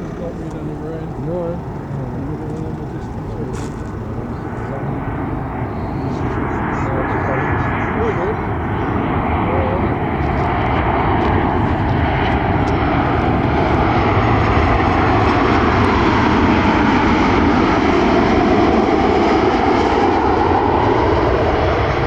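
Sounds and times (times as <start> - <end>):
jet airliner engines: 0.0 - 22.0.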